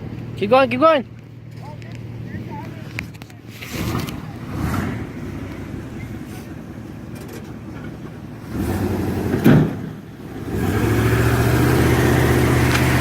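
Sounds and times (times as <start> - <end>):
truck engine rumbling: 0.0 - 13.0
loud thump: 9.4 - 9.9.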